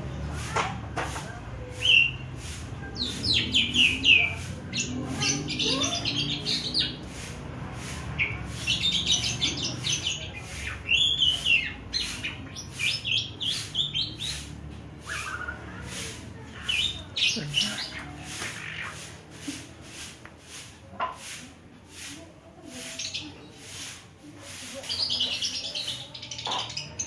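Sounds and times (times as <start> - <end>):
starling chirping and whistling: 3.0 - 7.1, 8.2 - 19.0.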